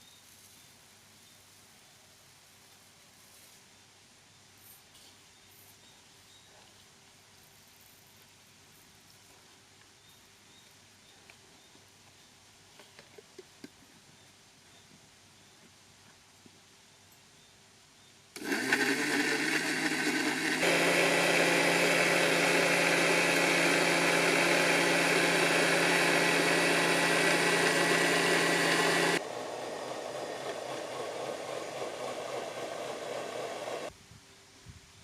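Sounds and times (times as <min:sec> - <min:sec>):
mixer grinder motor: 0:18.4 - 0:33.9.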